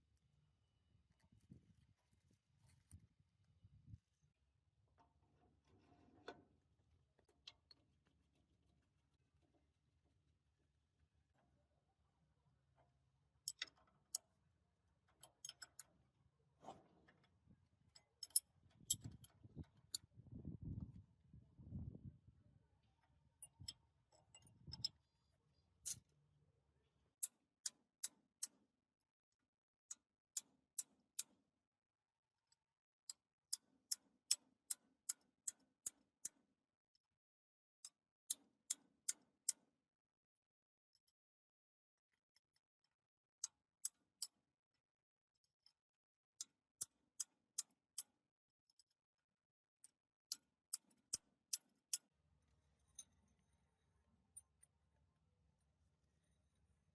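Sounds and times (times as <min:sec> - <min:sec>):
clicks of small metal parts: 0:13.4 - 0:14.3, 0:15.1 - 0:16.0, 0:17.9 - 0:20.1, 0:23.4 - 0:25.0, 0:25.8 - 0:26.1, 0:29.9 - 0:31.4, 0:33.0 - 0:36.4, 0:43.4 - 0:44.4, 0:49.8 - 0:52.0.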